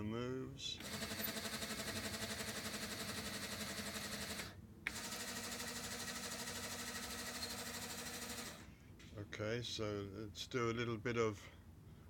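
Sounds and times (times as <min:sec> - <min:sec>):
small electric motor whirring: 0:00.8 - 0:08.7.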